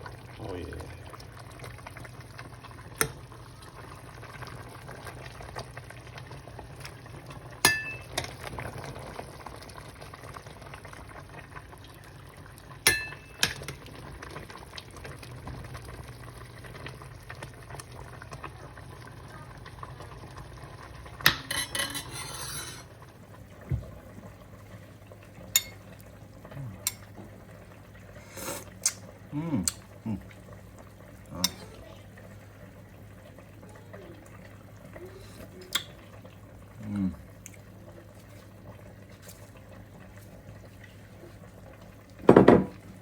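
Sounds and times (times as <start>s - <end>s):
stew bubbling: 0.0s - 43.0s
metal utensil clinking on pot: 7.6s - 8.3s, 12.9s - 13.8s, 21.3s - 22.9s, 25.5s - 25.8s, 26.8s - 27.1s.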